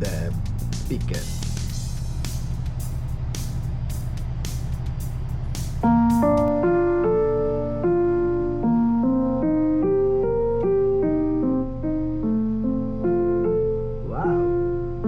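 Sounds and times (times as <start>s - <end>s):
keyboard melody: 0.0s - 15.0s
steady low hum: 0.0s - 15.0s.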